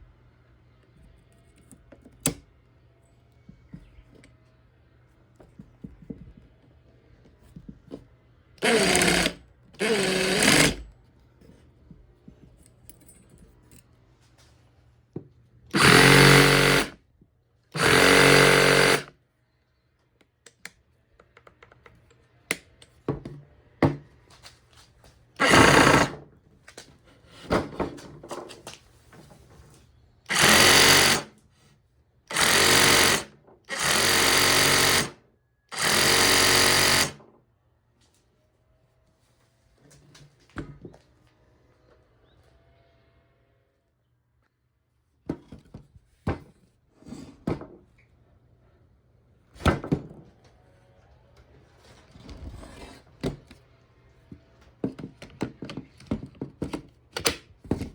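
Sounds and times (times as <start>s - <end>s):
faint clicks and handling noises: 0.7s - 8.3s, 10.9s - 15.5s, 19.8s - 23.5s
reciprocating saw running: 15.8s - 16.9s, 17.8s - 19.1s.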